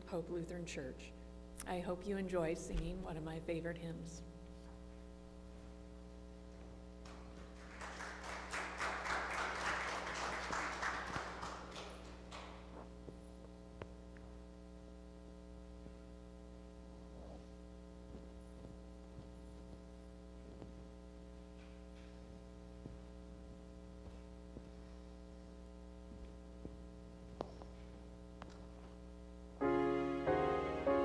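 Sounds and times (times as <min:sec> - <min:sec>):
sound system electrical hum: 0:00.0 - 0:31.0.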